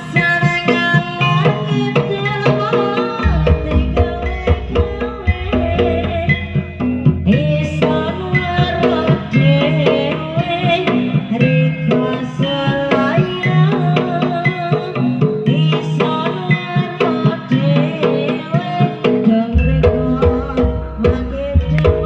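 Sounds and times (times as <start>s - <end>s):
rapid hand-drum strokes: 0.0s - 22.0s
wavering melody line: 0.7s - 14.6s
deep bass: 3.4s - 7.5s.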